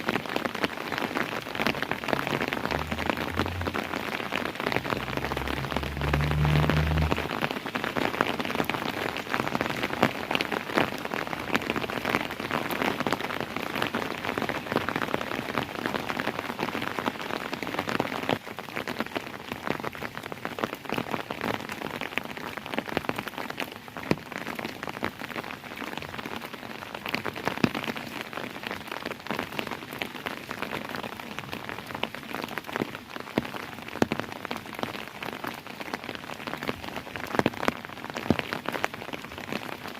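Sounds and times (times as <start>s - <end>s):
steady rain falling: 0.0s - 39.9s
low rumble: 1.8s - 7.5s.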